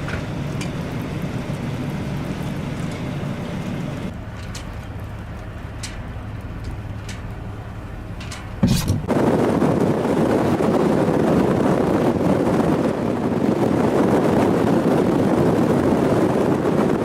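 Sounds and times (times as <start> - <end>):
vehicle rumble from inside: 0.0 - 17.0
sudden thump: 8.6 - 9.1.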